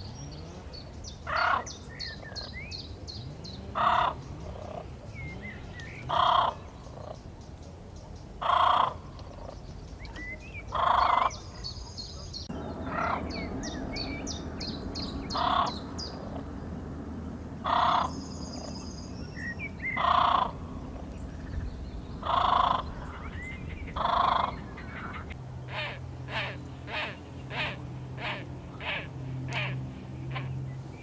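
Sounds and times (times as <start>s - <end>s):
small birds chirping: 0.0s - 31.0s
crow cawing: 6.1s - 6.6s, 8.4s - 9.0s, 10.8s - 11.4s, 15.3s - 15.8s, 17.6s - 18.1s, 20.0s - 20.6s, 22.2s - 23.0s, 24.0s - 30.4s.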